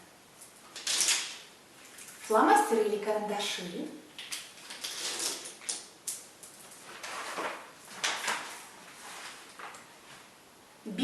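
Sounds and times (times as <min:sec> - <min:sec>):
rustling sliding swishes: 0:08.3 - 0:10.3.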